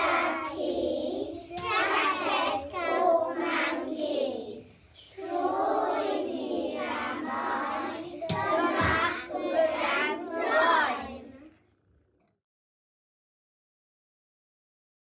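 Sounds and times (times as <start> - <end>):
children singing: 0.0 - 11.4
thump: 8.2 - 9.2.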